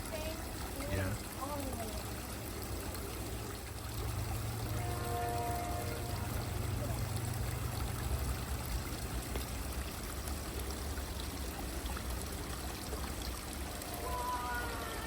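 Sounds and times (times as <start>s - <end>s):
creek water running: 0.0s - 15.0s.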